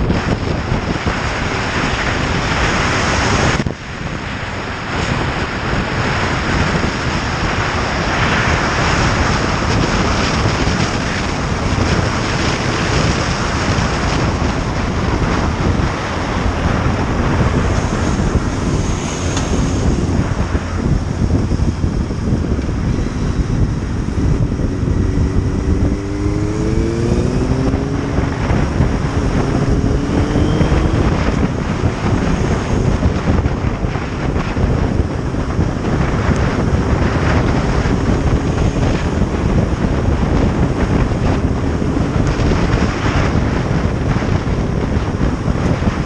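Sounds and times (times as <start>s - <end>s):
motorcycle engine accelerating: 0.0s - 46.0s
wind noise on microphone: 0.0s - 46.0s.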